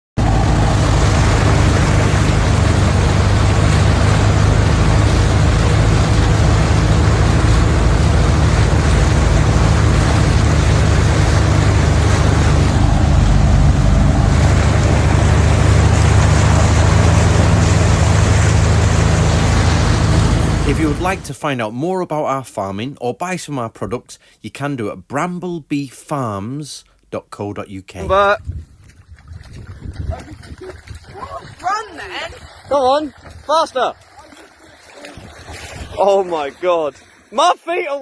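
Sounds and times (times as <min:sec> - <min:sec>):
car engine running under load: 0:00.2 - 0:21.4
water rushing and splashing: 0:00.2 - 0:26.6, 0:27.2 - 0:38.0.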